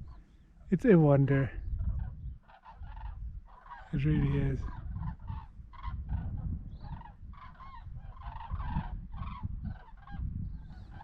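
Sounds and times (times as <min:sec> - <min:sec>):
flock of birds honking: 0:00.0 - 0:11.0.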